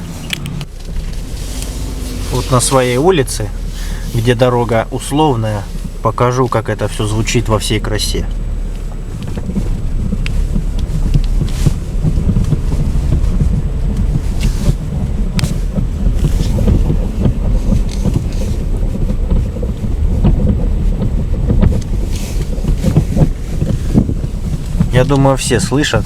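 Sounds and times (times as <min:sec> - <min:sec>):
low rumble of car: 0:00.0 - 0:26.0
dull rubbery suspension knocks: 0:08.4 - 0:25.4.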